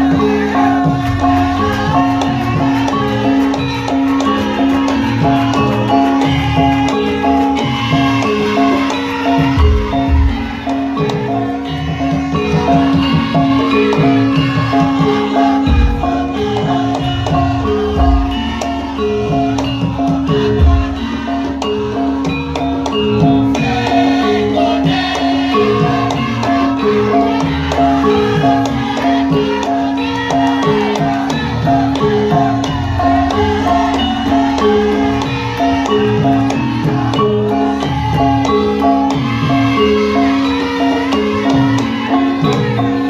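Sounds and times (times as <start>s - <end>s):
drum strokes: 0.0s - 43.0s.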